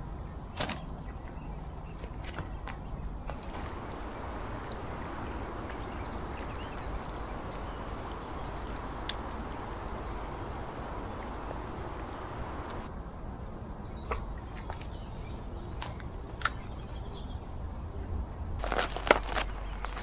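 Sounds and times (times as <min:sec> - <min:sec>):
steady rumbling hiss: 0:03.2 - 0:12.9, 0:18.6 - 0:20.0
faint bird chirps: 0:03.3 - 0:12.9.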